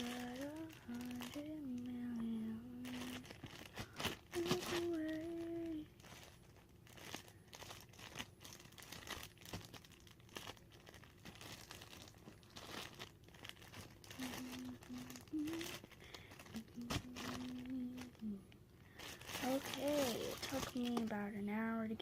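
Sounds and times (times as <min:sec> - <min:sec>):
person humming: 0:00.0 - 0:05.9, 0:14.0 - 0:18.6
plastic packaging crinkling: 0:00.0 - 0:22.0.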